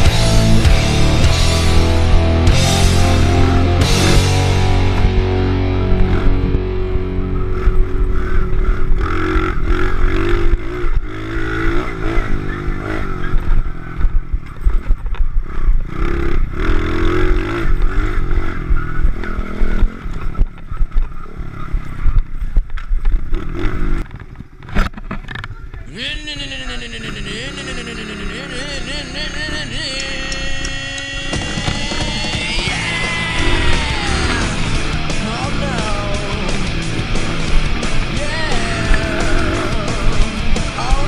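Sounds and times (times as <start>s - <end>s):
motorbike engine revving: 0.0s - 41.0s.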